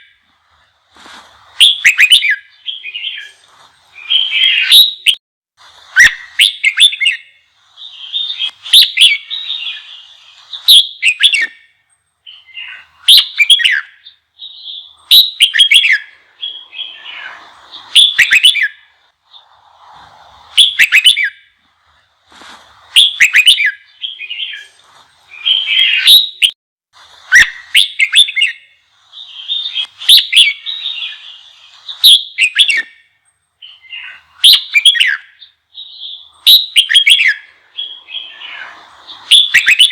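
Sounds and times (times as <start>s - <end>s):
bird singing whistled phrases: 1.6s - 5.2s, 5.9s - 19.5s, 20.6s - 21.5s, 22.9s - 26.6s, 27.2s - 39.9s.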